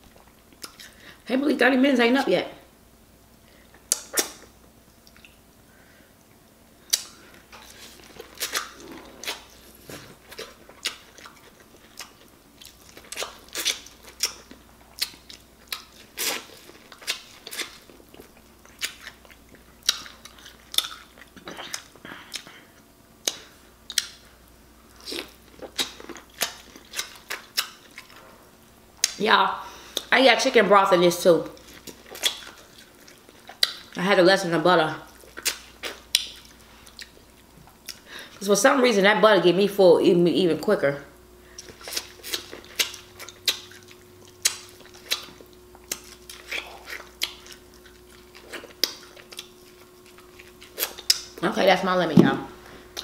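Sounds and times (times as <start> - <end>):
wet chewing and lip-smacking: 0.0 - 1.0, 3.7 - 5.5, 6.3 - 28.2, 29.8 - 30.1, 31.4 - 34.0, 35.0 - 38.3, 41.5 - 51.4.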